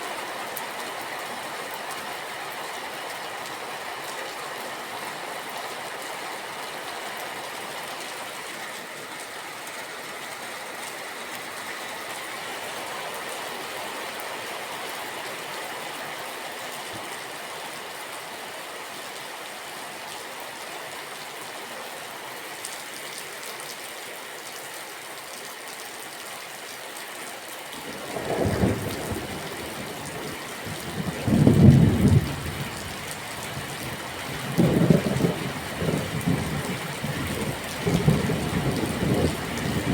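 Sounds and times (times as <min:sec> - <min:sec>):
steady rain falling: 0:00.0 - 0:39.9
thunder rumbling: 0:27.8 - 0:33.0, 0:34.5 - 0:39.9.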